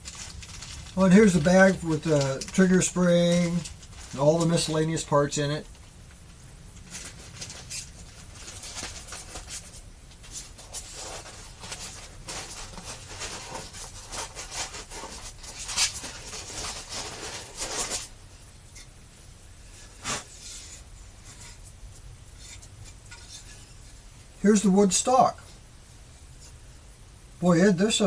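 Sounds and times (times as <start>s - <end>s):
plastic bag crinkling: 0.0s - 18.2s.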